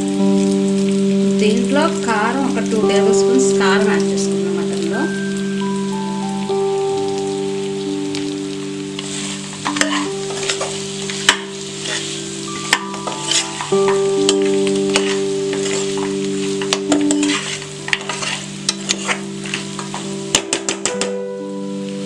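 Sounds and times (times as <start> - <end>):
meat sizzling in a pan: 7.4 - 22.0
spoon scraping and clinking on pan: 9.0 - 21.0.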